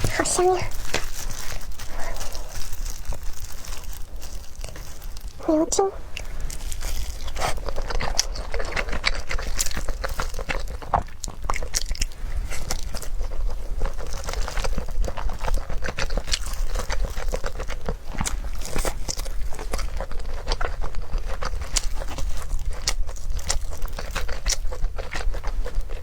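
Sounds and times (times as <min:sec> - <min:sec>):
wet chewing and mouth smacks: 0:06.1 - 0:26.0.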